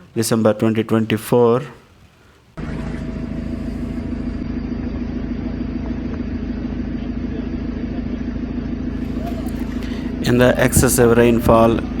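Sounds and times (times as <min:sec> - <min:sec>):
vehicle engine drone on road: 0:02.6 - 0:12.0.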